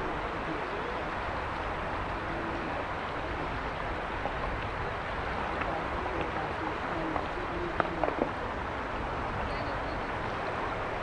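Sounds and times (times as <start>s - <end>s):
mountain river flowing: 0.0s - 11.0s.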